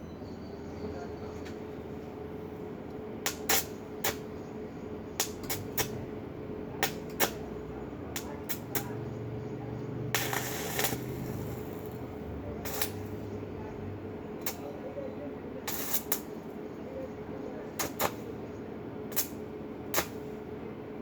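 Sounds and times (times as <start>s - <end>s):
hissing crackle: 10.2s - 12.0s, 12.6s - 13.2s, 15.7s - 16.3s.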